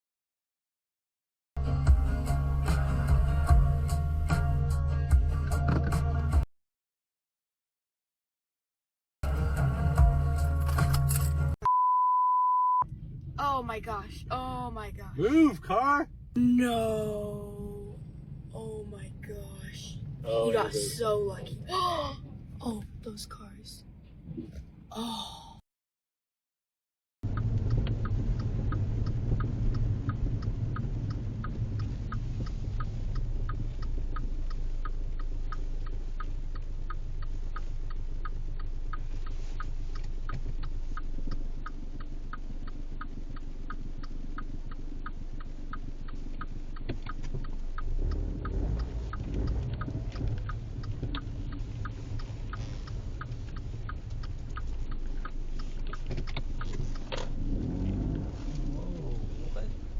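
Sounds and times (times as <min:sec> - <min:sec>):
car engine and road rumble: 0:01.6 - 0:06.5, 0:09.2 - 0:25.6, 0:27.2 - 0:59.9
turn signal clicking: 0:01.8 - 0:06.3, 0:27.3 - 0:59.9.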